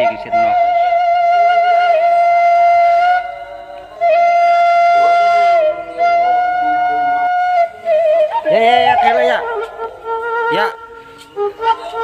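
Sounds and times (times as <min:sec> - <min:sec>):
flute-like wind instrument: 0:00.0 - 0:12.0.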